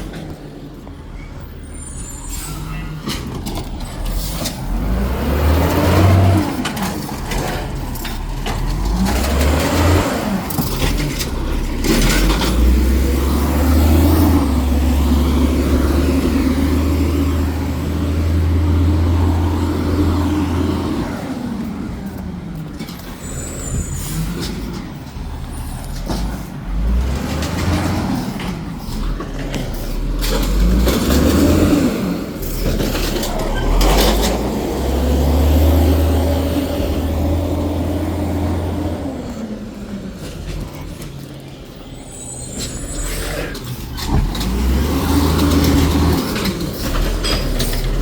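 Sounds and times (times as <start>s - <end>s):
garbage truck diesel engine revving: 1.3s - 48.0s
clanks and knocks: 43.5s - 48.0s.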